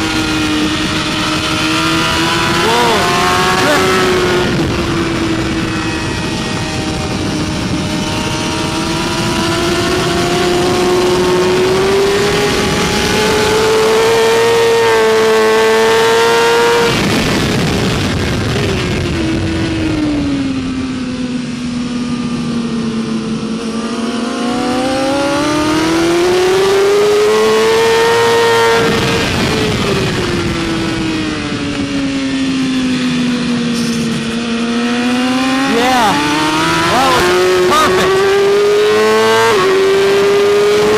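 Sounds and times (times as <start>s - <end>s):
motorcycle engine revving high: 0.0s - 40.9s
wind noise: 0.0s - 40.9s.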